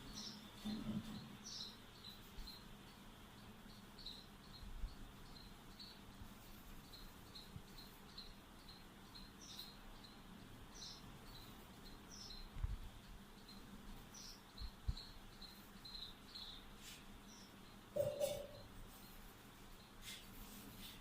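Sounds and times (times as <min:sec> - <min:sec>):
small bird chirping: 0:00.0 - 0:21.0.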